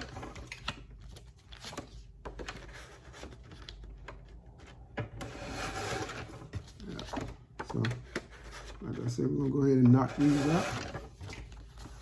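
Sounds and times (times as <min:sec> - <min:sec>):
paper rustle: 0:06.5 - 0:12.0.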